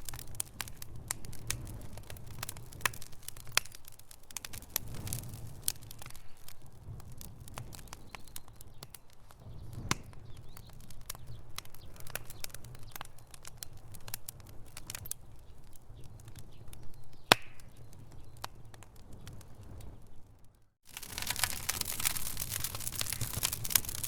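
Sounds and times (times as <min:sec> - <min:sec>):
loud wood snaps: 0:00.0 - 0:06.5, 0:09.8 - 0:15.2, 0:17.2 - 0:24.0
wood fire crackling and popping: 0:00.0 - 0:24.0.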